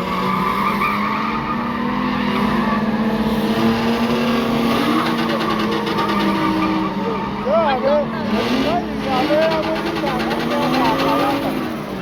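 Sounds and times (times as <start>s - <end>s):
race car engine at high revs: 0.0s - 12.0s
tyres squealing: 4.8s - 11.8s.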